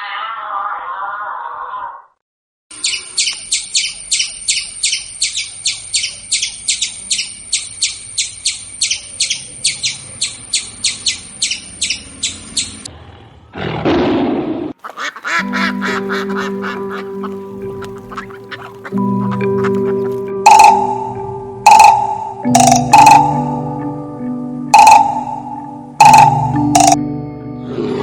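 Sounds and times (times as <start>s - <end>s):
small bird chirping: 2.7s - 12.9s.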